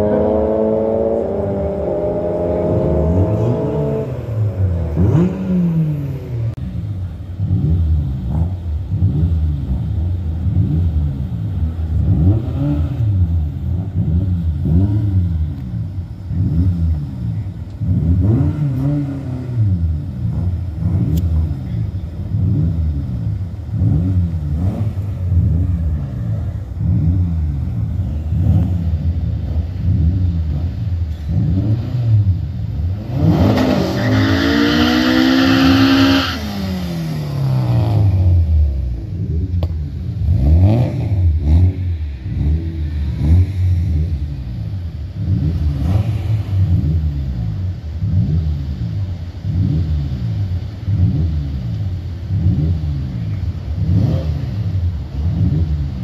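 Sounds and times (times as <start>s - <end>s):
car engines revving in blips: 0.0s - 56.0s.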